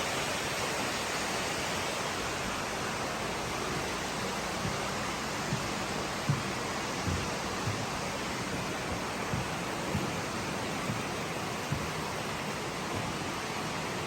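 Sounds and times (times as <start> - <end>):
rushing water: 0.0 - 14.0
soft low thumps: 3.7 - 13.4.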